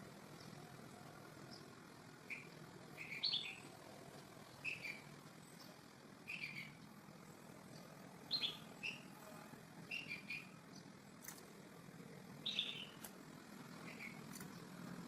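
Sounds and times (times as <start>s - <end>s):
small bird chirping: 1.4s - 3.8s, 4.4s - 9.2s, 9.8s - 11.4s, 12.4s - 13.1s, 13.8s - 14.8s.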